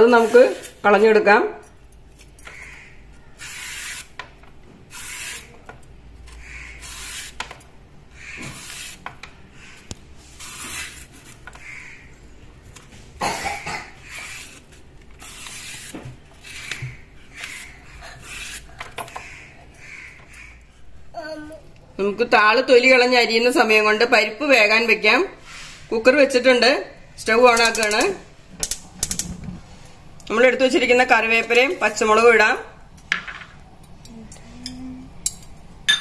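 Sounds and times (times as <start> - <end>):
peeler rasping on vegetable skin: 3.3 - 4.2, 4.9 - 5.6, 6.3 - 7.4, 8.2 - 9.0, 10.3 - 11.7, 14.0 - 19.4.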